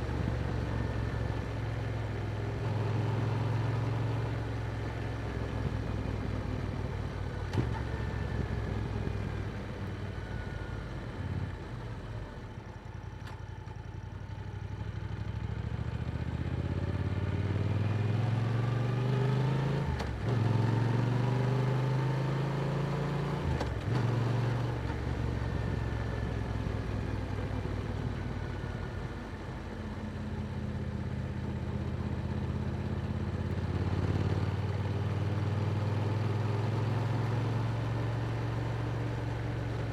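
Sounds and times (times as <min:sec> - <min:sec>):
motorcycle engine accelerating: 0:15.6 - 0:30.2, 0:33.0 - 0:39.9.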